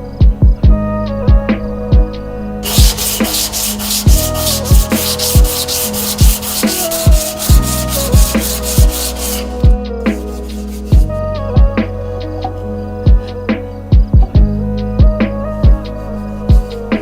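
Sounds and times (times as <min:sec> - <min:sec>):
background music with kick drum: 0:00.0 - 0:17.0
hand sanding strokes: 0:02.6 - 0:11.2.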